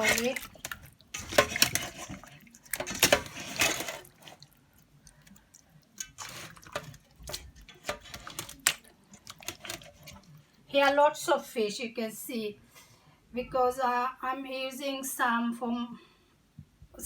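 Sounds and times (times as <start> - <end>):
water splashing in a bowl: 0.0 - 10.6.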